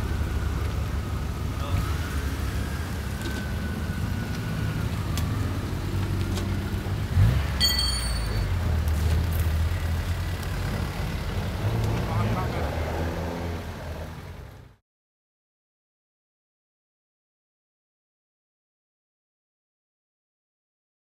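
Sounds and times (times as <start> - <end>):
car engine rumbling: 0.0 - 14.8
high-pitched tone: 7.6 - 8.6.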